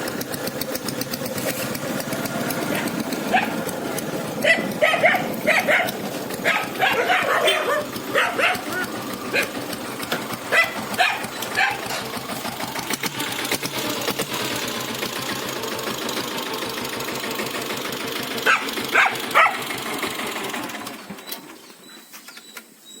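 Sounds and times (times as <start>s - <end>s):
diesel engine clattering: 0.0s - 21.7s
dog barking: 2.7s - 3.6s, 4.4s - 9.5s, 10.5s - 11.9s, 18.4s - 19.6s.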